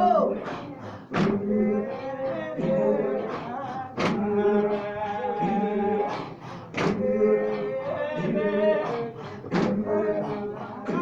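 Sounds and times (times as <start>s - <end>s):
voices chanting held notes: 0.0s - 11.0s
sharp percussive beats: 1.1s - 1.7s, 4.0s - 4.4s, 5.4s - 8.5s, 9.4s - 10.0s.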